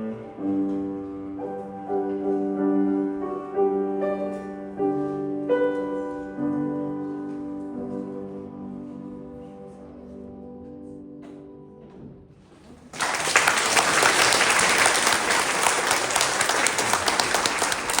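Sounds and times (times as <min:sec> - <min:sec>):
audience applause: 0:12.9 - 0:18.0.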